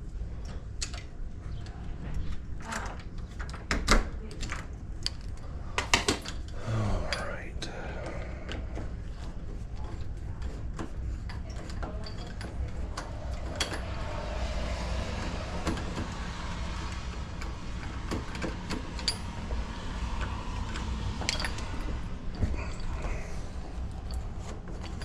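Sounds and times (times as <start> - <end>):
tools and lock hardware clicking: 2.7 - 7.2, 9.9 - 14.0, 17.8 - 25.0
steady low rumble: 6.4 - 25.0.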